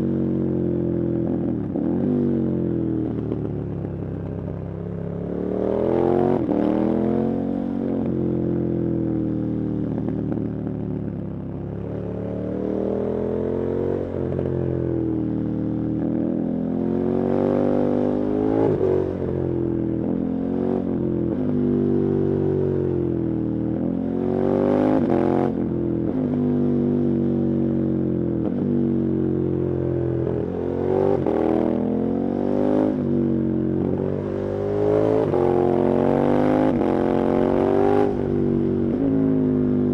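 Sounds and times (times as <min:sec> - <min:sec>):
motorcycle engine revving: 0:33.9 - 0:39.9.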